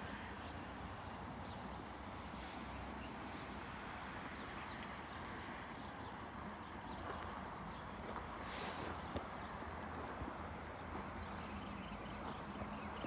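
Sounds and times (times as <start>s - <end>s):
soft footsteps: 7.0s - 13.0s.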